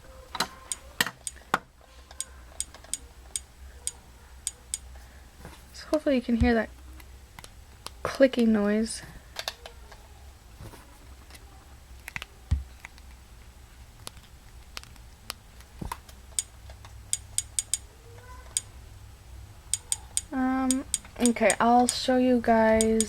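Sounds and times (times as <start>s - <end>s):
sharp clicks: 0.4s - 1.4s, 2.1s - 4.9s, 16.3s - 17.9s, 18.5s - 18.7s, 19.7s - 22.1s, 22.7s - 23.0s.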